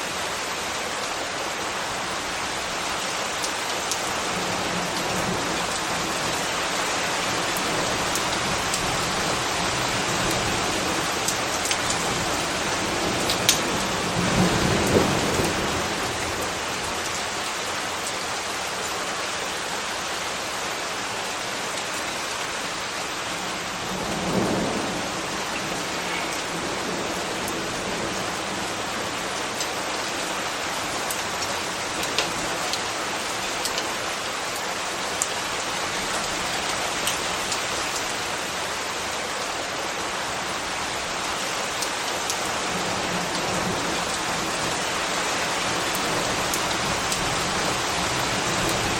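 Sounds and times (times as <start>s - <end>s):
steady rain hiss: 0.0s - 48.9s.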